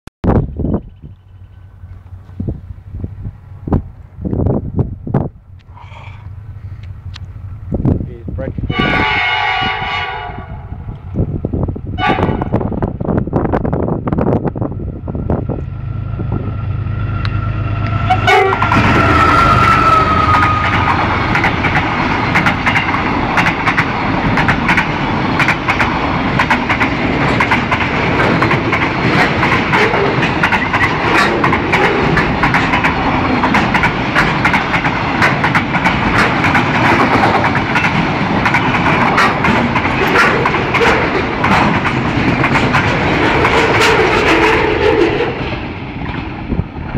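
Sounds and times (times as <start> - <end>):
diesel locomotive engine drone: 0.2 - 46.9
wagons rumbling and wheel clatter: 17.3 - 46.9.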